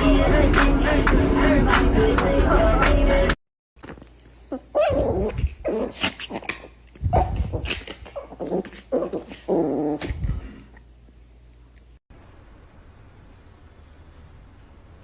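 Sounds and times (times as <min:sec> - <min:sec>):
dog making pitched calls: 0:04.5 - 0:10.2.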